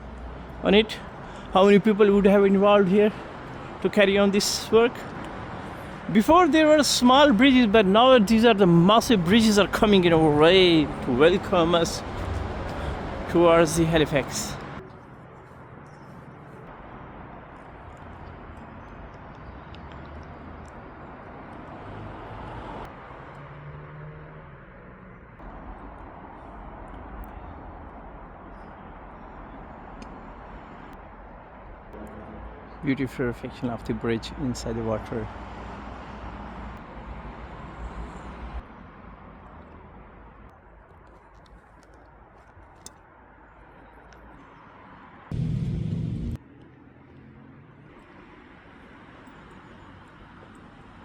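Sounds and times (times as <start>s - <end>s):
vehicle passing: 0.0s - 27.8s, 44.8s - 51.0s
road traffic rumble: 0.0s - 51.0s
low rumble: 45.3s - 46.4s
faint engine hum: 45.3s - 47.4s.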